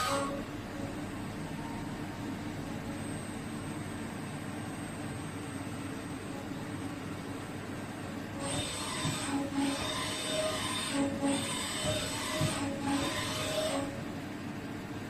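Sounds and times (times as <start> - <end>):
cutting tool screeching on metal: 0.0 - 0.4, 8.4 - 14.0
machine humming: 0.0 - 15.0.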